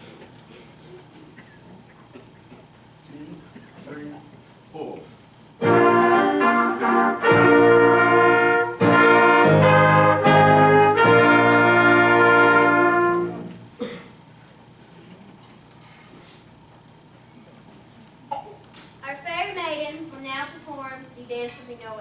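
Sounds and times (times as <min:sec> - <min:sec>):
brass fanfare: 0:05.6 - 0:13.8.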